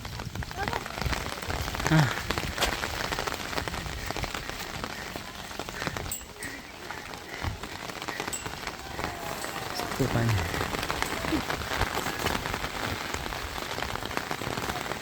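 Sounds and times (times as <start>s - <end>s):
heavy rain with dripping ticks: 0.0s - 15.0s.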